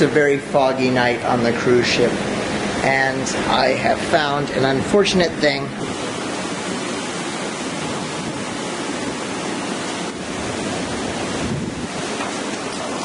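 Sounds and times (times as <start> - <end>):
sea: 0.0 - 13.0
wind rushing: 5.7 - 12.6.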